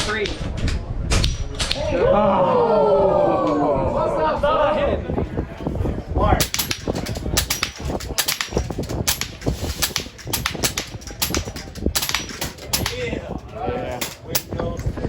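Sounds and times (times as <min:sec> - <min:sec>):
wind rumble on microphone: 0:00.1 - 0:15.0
air rifle shots cracking: 0:06.4 - 0:14.7.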